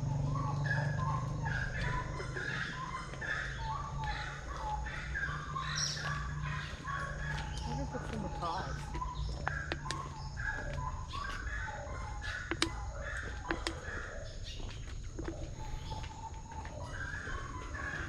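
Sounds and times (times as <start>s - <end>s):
birds chirping: 0.0s - 18.0s
sharp clicks: 12.5s - 12.8s, 13.4s - 13.8s.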